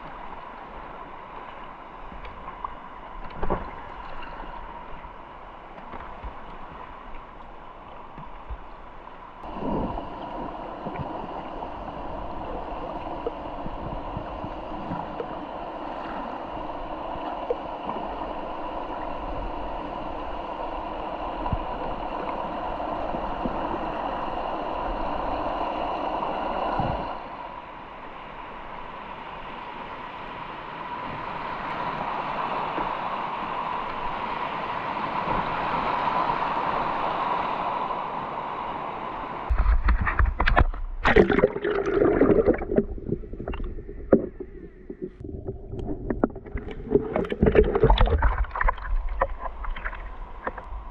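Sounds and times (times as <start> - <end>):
river water gurgling: 31.3 - 50.9.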